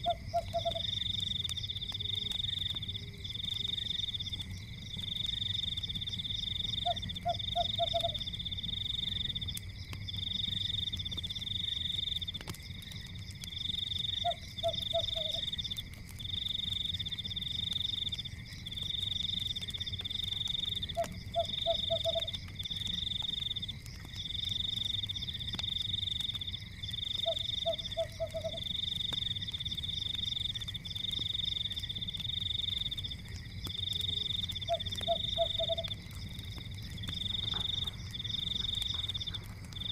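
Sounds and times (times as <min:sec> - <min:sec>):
frog croaking: 0:00.0 - 0:01.0, 0:06.7 - 0:08.2, 0:14.2 - 0:15.5, 0:20.8 - 0:22.4, 0:27.2 - 0:28.7, 0:34.1 - 0:36.0, 0:37.1 - 0:39.9
faint crackles: 0:00.0 - 0:39.9.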